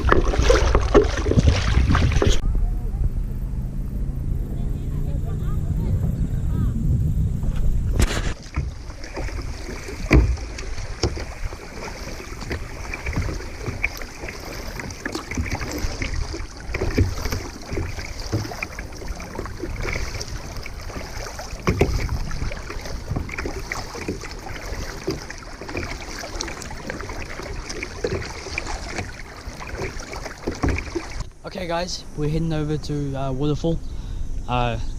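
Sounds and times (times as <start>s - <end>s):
paddle splashing in water: 0.0s - 2.4s, 7.4s - 31.3s
wind noise on microphone: 0.0s - 14.0s, 14.7s - 25.2s.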